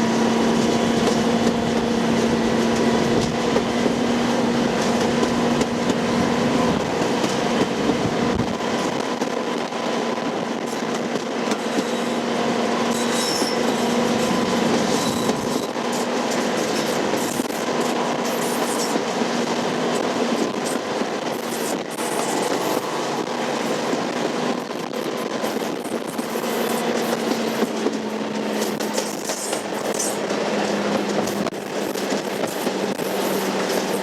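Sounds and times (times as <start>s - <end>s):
diesel train engine: 0.0s - 34.0s
rail and wheel noise: 0.0s - 34.0s
faint high wheel squeals: 12.9s - 16.0s.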